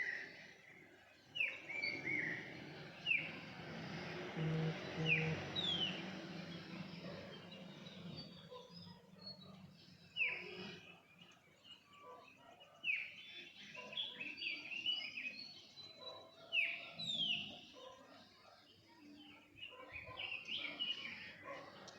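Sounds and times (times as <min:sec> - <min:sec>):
birds chirping: 0:00.0 - 0:21.9
sharp downward-sweeping bird calls: 0:04.4 - 0:06.4.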